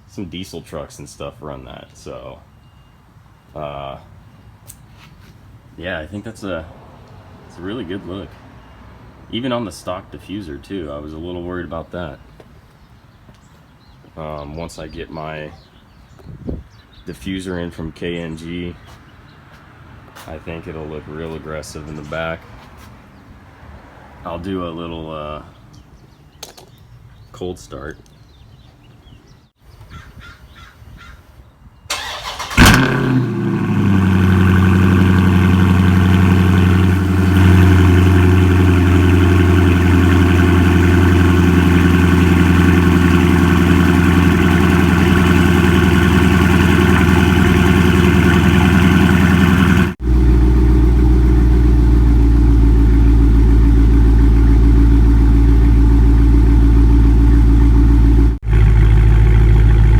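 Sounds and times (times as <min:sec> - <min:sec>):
car engine starting and idling: 0:31.9 - 0:59.9.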